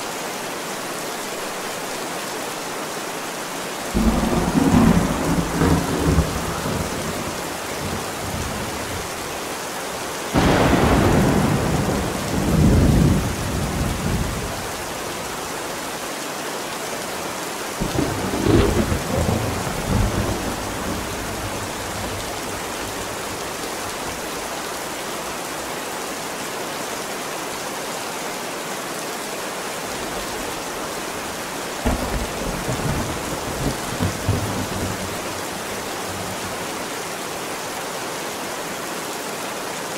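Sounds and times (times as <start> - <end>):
heavy rain: 0.0 - 39.9
thunder rolling: 4.0 - 9.2, 10.4 - 14.6, 17.8 - 23.4, 31.8 - 36.6.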